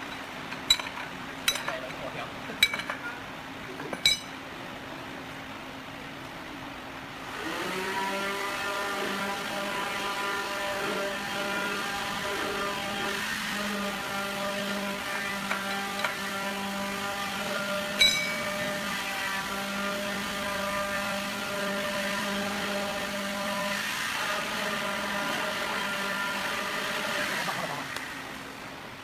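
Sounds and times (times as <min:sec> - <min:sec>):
sharp metallic clink: 0:04.0 - 0:04.4, 0:18.0 - 0:18.6
electric motor humming: 0:07.3 - 0:28.4.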